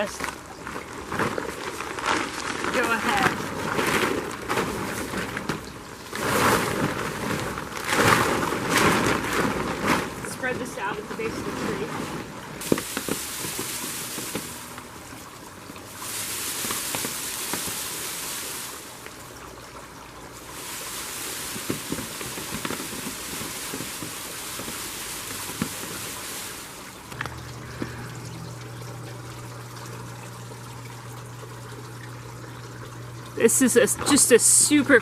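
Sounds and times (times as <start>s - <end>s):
leaves rustling: 0.0s - 19.3s, 20.3s - 29.8s
low steady hum: 0.0s - 35.0s
berries tapping onto tarp: 12.6s - 14.8s, 20.9s - 26.3s.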